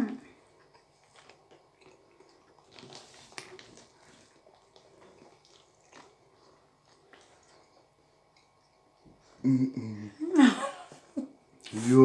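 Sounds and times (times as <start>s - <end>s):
biting and chewing bread: 0.4s - 9.0s.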